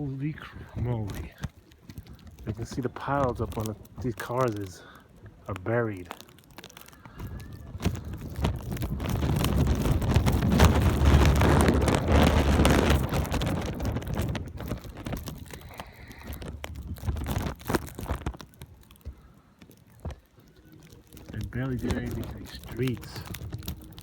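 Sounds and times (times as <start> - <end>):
footsteps crunching in snow: 0.0 - 19.2
wind buffeting microphone: 7.1 - 18.5.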